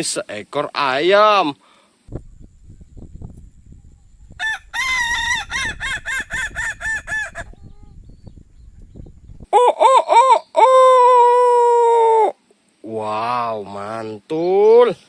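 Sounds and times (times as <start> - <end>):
rooster crowing: 4.3 - 7.6.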